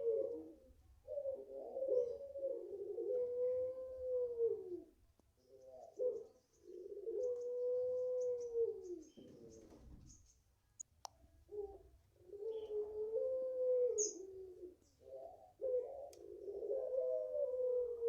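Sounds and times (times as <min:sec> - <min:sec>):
dove cooing: 0:00.0 - 0:10.2, 0:11.4 - 0:18.0
faint small bird chirps: 0:08.2 - 0:10.5, 0:13.9 - 0:16.3.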